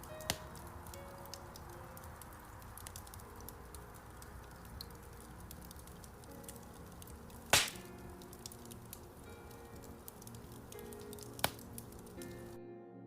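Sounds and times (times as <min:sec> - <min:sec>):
wood fire crackling: 0:00.0 - 0:12.6
fire loud sharp pop: 0:07.5 - 0:07.9.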